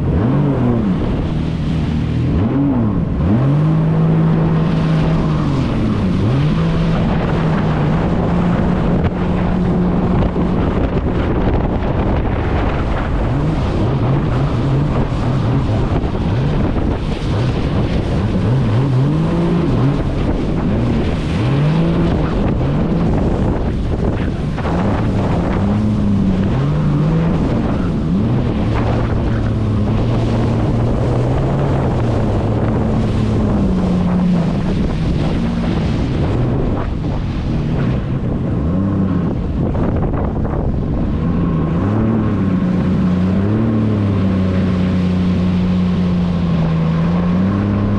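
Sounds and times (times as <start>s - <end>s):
jet ski engine revving: 0.0s - 47.9s
wind noise on microphone: 0.0s - 47.9s.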